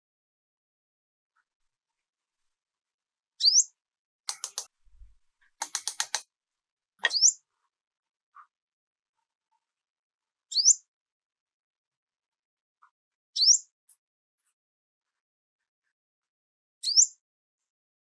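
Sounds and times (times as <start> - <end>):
rapid clicks: 4.3 - 6.2.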